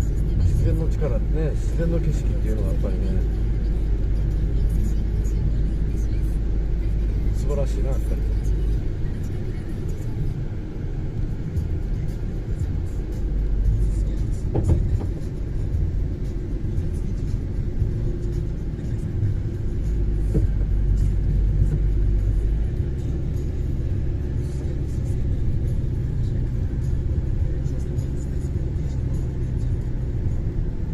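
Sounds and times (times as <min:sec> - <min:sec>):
car interior rumble: 0:00.0 - 0:30.9.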